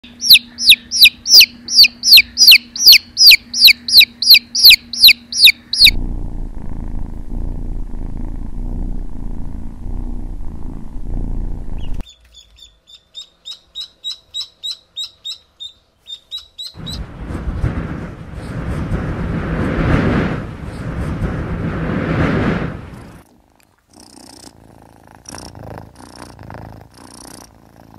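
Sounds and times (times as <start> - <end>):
chick peeping: 0.0 - 6.0, 11.8 - 17.0
kitten purring: 5.8 - 12.0, 19.8 - 27.9
wind rushing past car window: 16.8 - 23.2.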